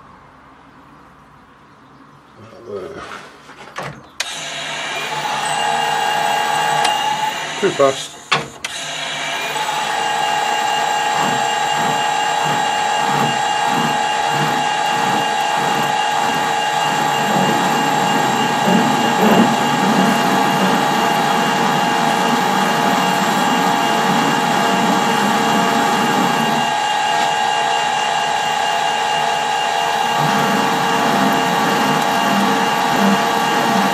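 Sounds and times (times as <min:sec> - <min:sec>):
metal lathe whining: 0:04.2 - 0:33.9
rough lathe cutting: 0:04.2 - 0:33.9.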